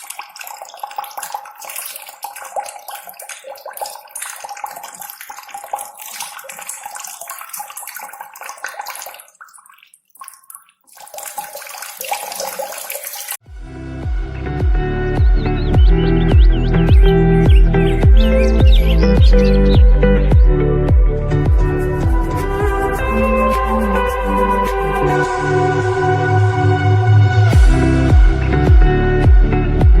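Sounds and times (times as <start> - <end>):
splashing running water: 0.0 - 13.4, 15.8 - 20.5.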